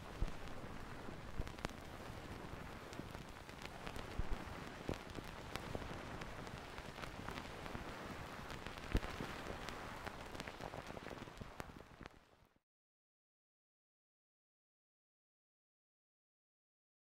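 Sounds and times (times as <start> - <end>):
rain falling: 0.0 - 12.1.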